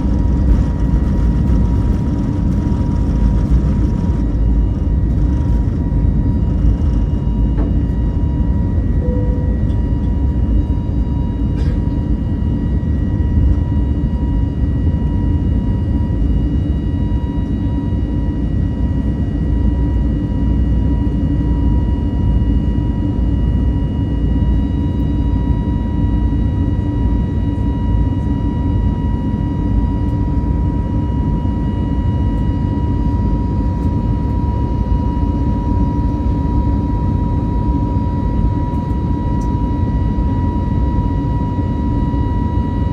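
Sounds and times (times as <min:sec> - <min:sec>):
high engine tone: 0:00.0 - 0:12.1
aircraft cabin rumble: 0:00.0 - 0:22.2, 0:25.8 - 0:42.9.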